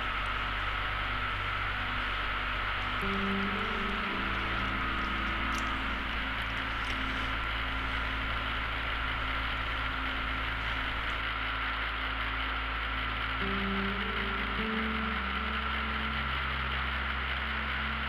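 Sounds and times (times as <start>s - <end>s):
propeller aircraft droning: 0.0s - 11.3s.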